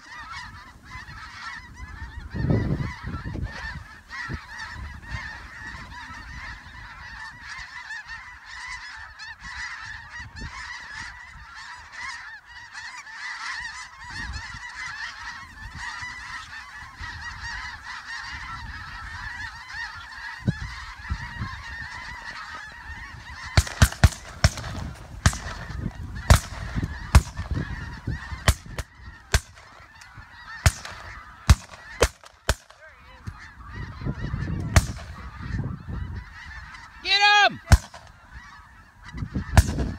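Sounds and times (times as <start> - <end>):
geese honking: 0.0 - 39.9
sharp cracks: 23.6 - 27.6, 28.4 - 33.4, 34.6 - 35.2, 37.7 - 38.2, 39.6 - 39.9.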